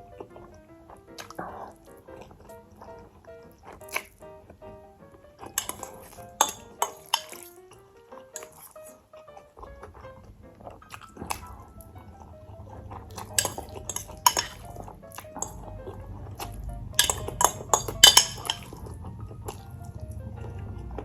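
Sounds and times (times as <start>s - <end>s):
utensils clinking on dishware: 5.6s - 7.5s, 13.1s - 15.6s, 17.0s - 18.8s.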